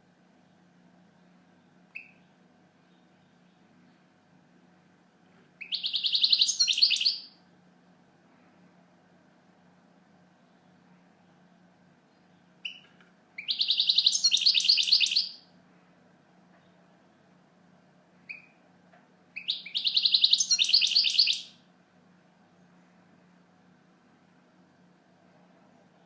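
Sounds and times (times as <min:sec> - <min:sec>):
goldfinch twittering song: 0:05.6 - 0:07.3, 0:12.6 - 0:15.4, 0:19.4 - 0:21.5.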